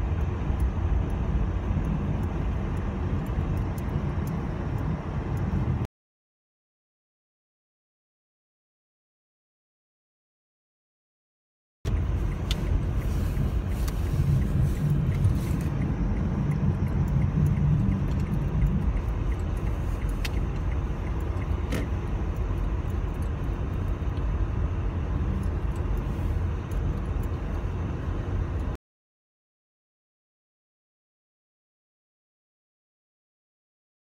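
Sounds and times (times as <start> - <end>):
vehicle engine and tyres rumbling: 0.0 - 5.9, 11.9 - 28.8
faint ticks: 11.9 - 24.3, 25.3 - 27.6.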